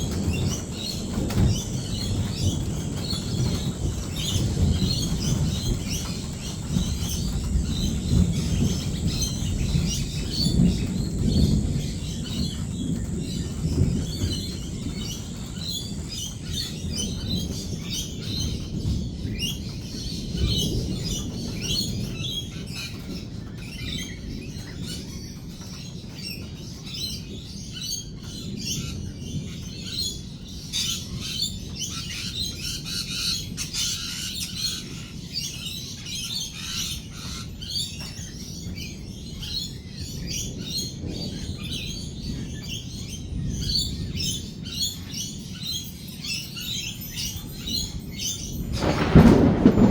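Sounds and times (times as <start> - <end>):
low rumble: 48.4 - 49.9.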